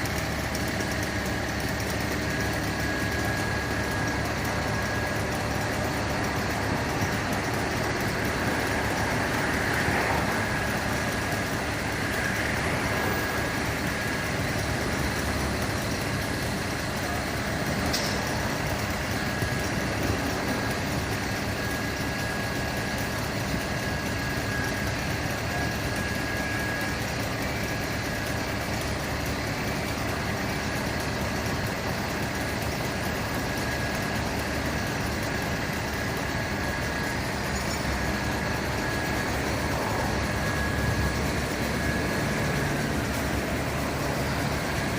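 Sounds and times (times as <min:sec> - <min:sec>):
truck engine idling: 0:00.0 - 0:44.9
faint high whine: 0:00.1 - 0:30.9, 0:31.5 - 0:44.9.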